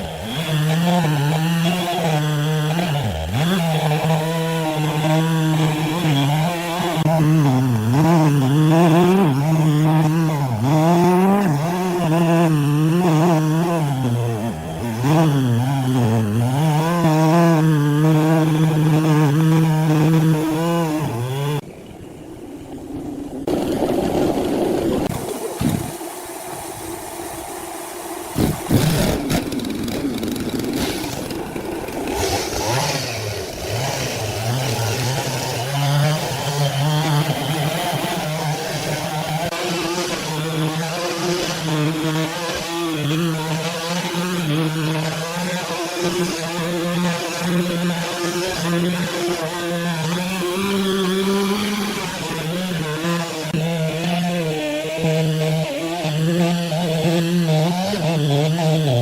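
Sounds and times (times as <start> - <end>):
saw engine cutting log: 0.0 - 21.6, 22.9 - 59.0
sawmill machinery running: 27.8 - 59.0.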